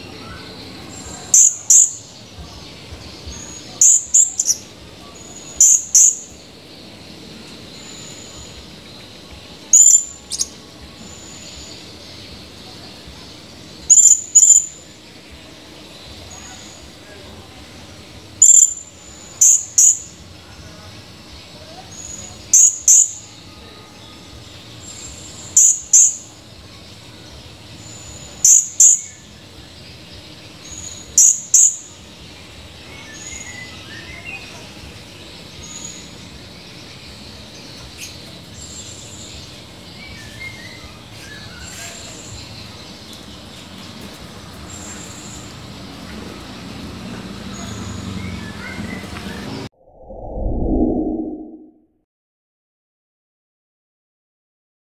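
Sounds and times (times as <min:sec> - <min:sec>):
faint chirps: 0:00.1 - 0:15.2
insect hum: 0:00.2 - 0:43.6.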